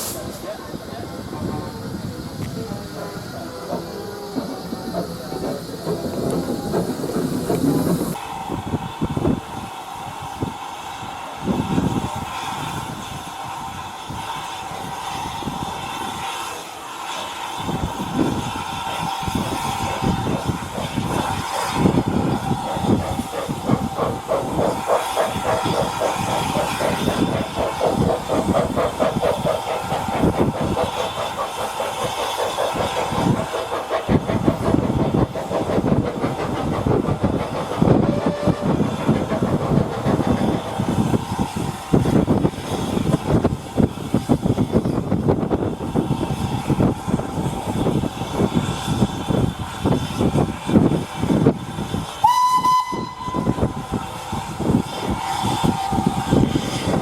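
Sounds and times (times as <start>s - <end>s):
steam hissing: 0.0s - 57.0s
steam locomotive rapid beats: 0.0s - 57.0s.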